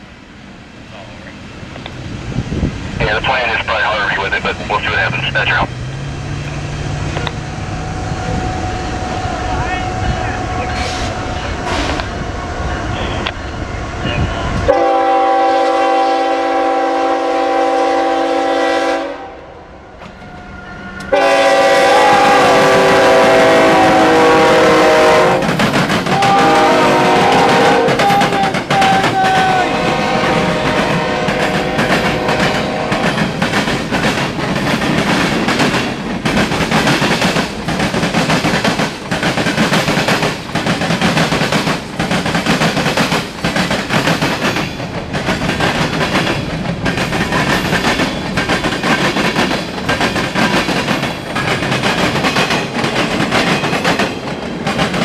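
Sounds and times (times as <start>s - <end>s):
train rumbling by: 0.0s - 55.0s
locomotive air horn blasts: 14.7s - 19.4s, 21.1s - 25.4s, 26.1s - 33.0s.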